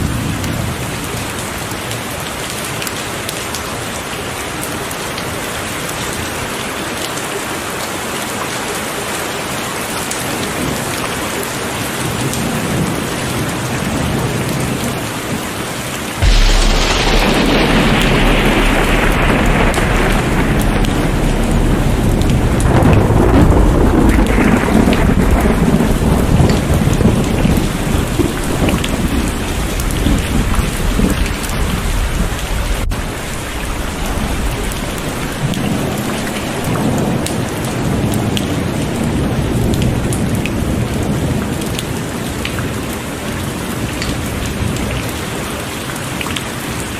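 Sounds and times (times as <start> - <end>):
heavy rain pouring: 0.0 - 46.9
sharp drop hits: 16.2 - 30.9
thunder rumbling: 16.2 - 41.4.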